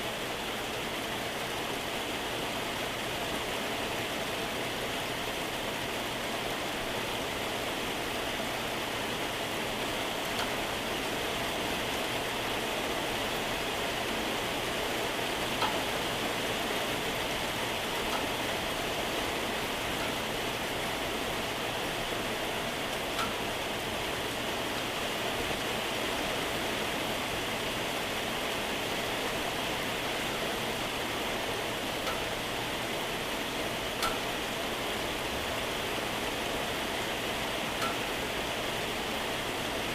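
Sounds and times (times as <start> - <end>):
heavy rain falling: 0.0 - 39.9
raindrops ticking: 13.3 - 24.0, 29.6 - 35.8, 37.7 - 38.4.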